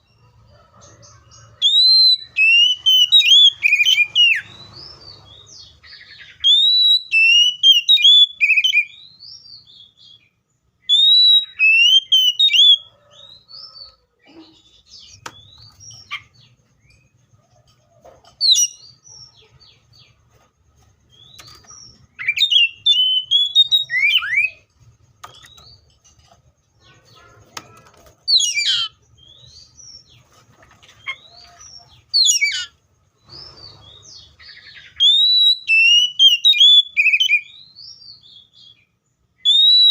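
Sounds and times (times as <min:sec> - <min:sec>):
bird singing whistled phrases: 0:01.6 - 0:04.8, 0:05.9 - 0:10.2, 0:10.8 - 0:12.9, 0:22.2 - 0:24.6, 0:34.4 - 0:39.9.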